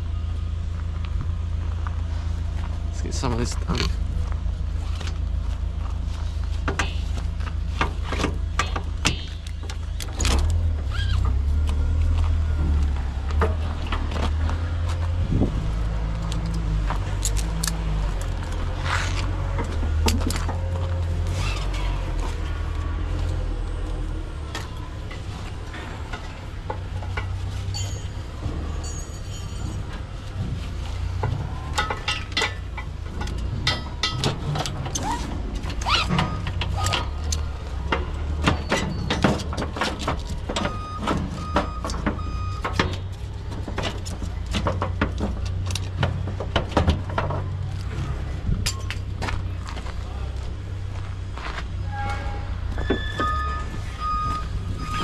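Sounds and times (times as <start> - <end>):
engine rumbling: 0.0 - 55.0
scrap metal clanking and banging: 12.5 - 50.0, 51.4 - 55.0
short beeps: 53.2 - 55.0.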